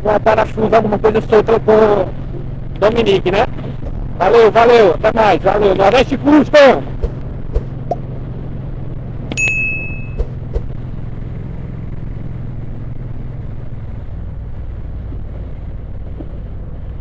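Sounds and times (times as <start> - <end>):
motorcycle engine and road drone: 0.0 - 17.0
short high-pitched beep: 9.4 - 10.3.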